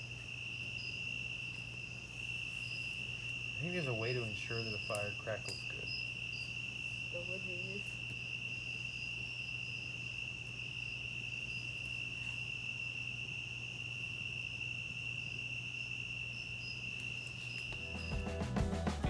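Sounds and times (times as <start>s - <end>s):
campfire popping: 0.0s - 12.4s, 17.0s - 19.0s
insects trilling: 0.0s - 18.6s.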